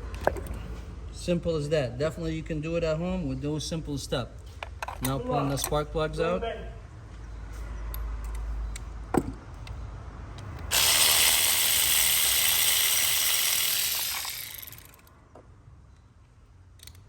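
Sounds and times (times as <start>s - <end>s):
ratchet wrench clicking: 10.4s - 15.1s.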